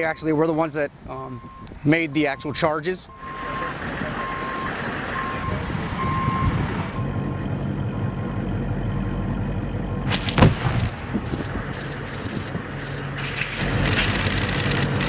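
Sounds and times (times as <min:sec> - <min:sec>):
reversing beeper: 0:00.0 - 0:10.1
vehicle engine running: 0:06.6 - 0:15.0
demolition charges cracking: 0:10.1 - 0:15.0.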